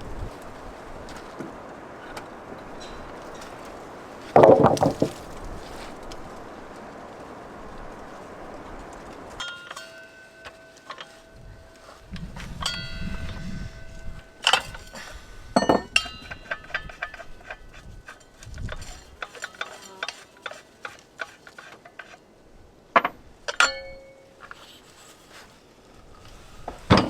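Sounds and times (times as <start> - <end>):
metal hand tools clinking: 9.3 - 22.2, 23.0 - 24.7.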